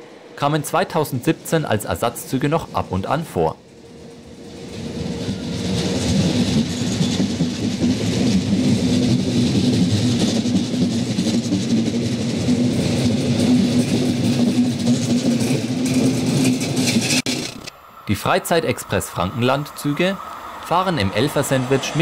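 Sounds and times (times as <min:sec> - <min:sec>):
electric locomotive hum: 0:00.0 - 0:22.0
train wheels rolling: 0:00.0 - 0:22.0.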